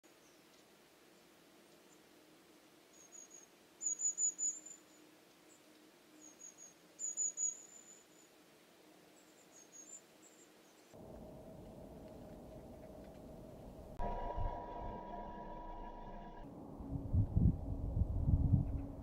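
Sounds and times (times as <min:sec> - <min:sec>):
faint low hum: 0:11.0 - 0:19.0.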